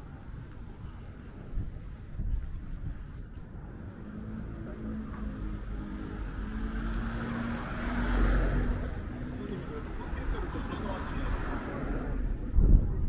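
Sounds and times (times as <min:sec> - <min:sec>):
vehicle passing by: 0:05.3 - 0:12.4.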